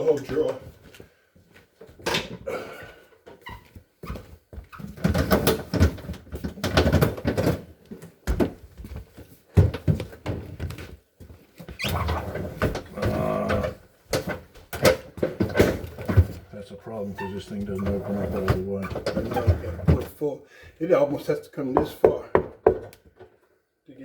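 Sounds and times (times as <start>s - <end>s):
refrigerator shelves clattering: 4.9s - 8.6s, 11.9s - 16.5s, 17.2s - 20.2s.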